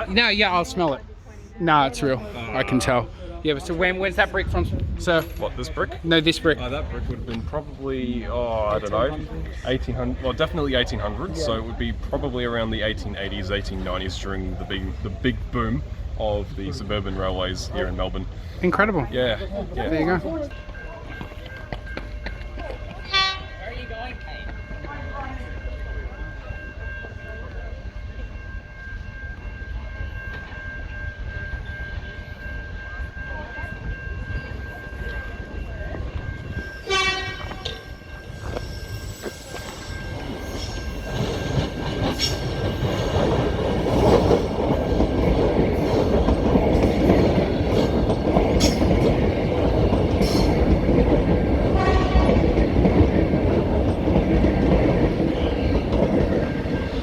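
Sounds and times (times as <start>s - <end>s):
electric train running through: 0.0s - 57.0s
train wheel clatter: 3.5s - 57.0s
train horn: 23.0s - 23.6s, 36.8s - 37.8s, 51.7s - 52.5s.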